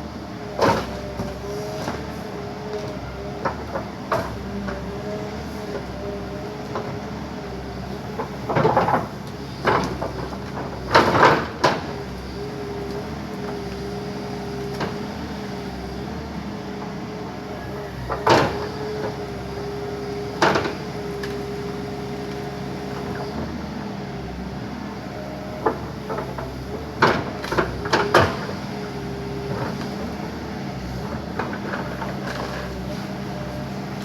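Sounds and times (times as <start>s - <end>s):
backhoe engine running: 0.0s - 34.0s
trees cracking and knocking: 29.4s - 32.9s.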